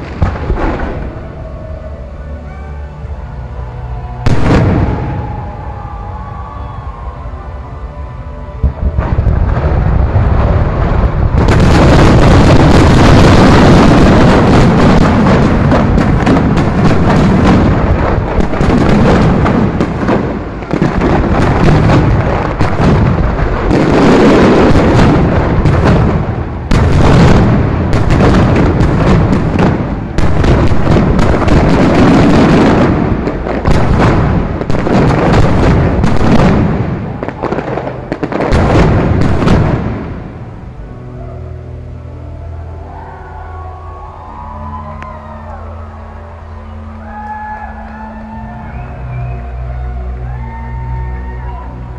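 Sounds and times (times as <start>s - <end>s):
fireworks bangs and crackles: 0.0s - 2.2s, 3.2s - 7.2s, 8.6s - 40.8s.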